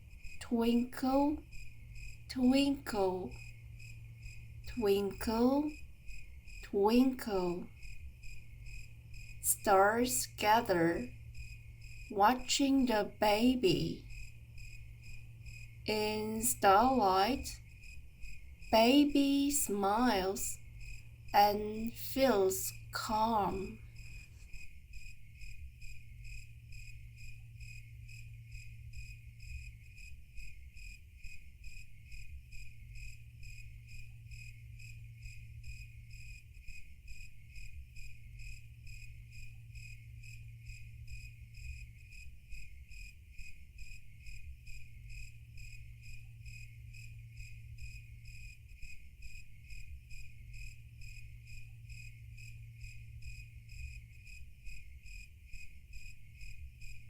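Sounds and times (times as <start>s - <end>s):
low steady hum: 0.0s - 30.5s, 43.6s - 57.0s
crickets chirping: 0.0s - 57.0s.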